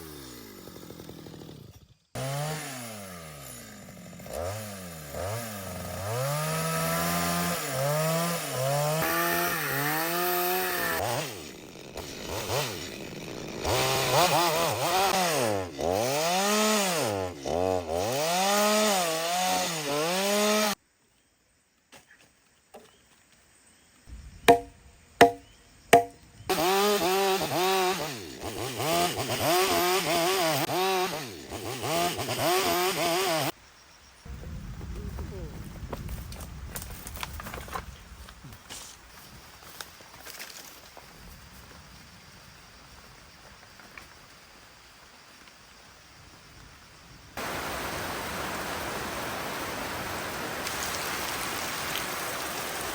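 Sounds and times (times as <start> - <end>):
chainsaw cutting wood: 0.0 - 20.8, 24.5 - 33.6
sharp knocks: 24.4 - 26.2.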